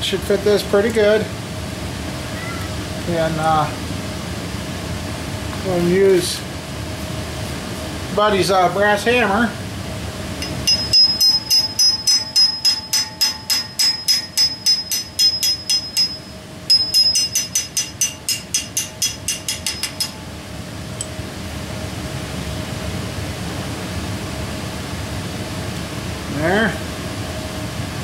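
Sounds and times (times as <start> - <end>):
hammer tapping on metal: 10.4 - 20.2.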